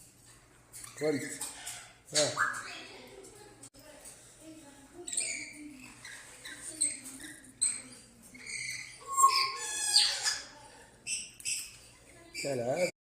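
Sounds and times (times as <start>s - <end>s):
parrots squawking: 0.7s - 2.9s, 5.0s - 12.9s.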